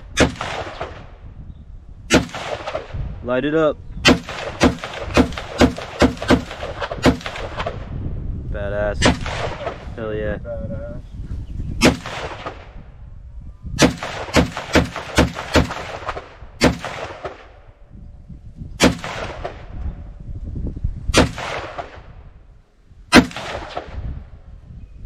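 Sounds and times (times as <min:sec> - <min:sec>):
rifle shots echoing: 0:00.0 - 0:01.2, 0:02.1 - 0:03.1, 0:04.0 - 0:07.9, 0:09.0 - 0:10.0, 0:11.8 - 0:12.8, 0:13.8 - 0:17.8, 0:18.8 - 0:19.7, 0:21.1 - 0:22.2, 0:23.1 - 0:24.3.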